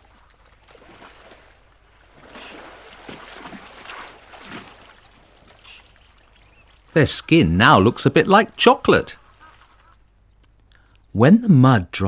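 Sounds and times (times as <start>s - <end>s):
elephants splashing in mud: 0.0s - 6.0s.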